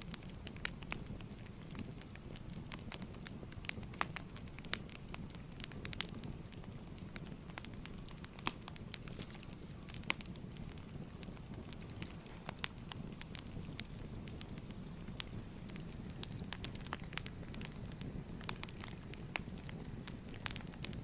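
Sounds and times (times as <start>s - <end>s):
pops and snaps of fire: 0.0s - 21.0s
soft rumble of flames: 0.0s - 21.0s
wood fire crackling: 0.0s - 21.0s.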